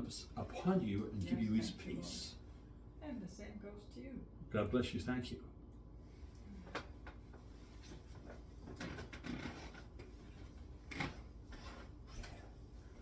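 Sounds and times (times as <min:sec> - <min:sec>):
faint knocks and handling noises: 0:06.6 - 0:13.0.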